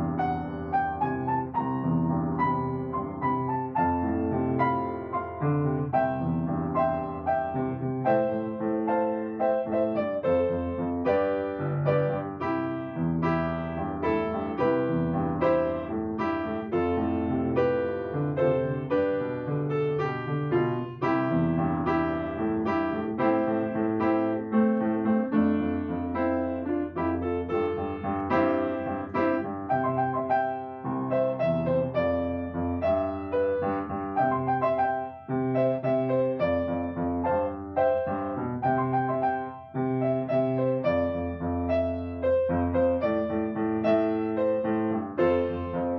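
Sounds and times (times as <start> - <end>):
gentle solo piano piece: 0.0 - 45.9.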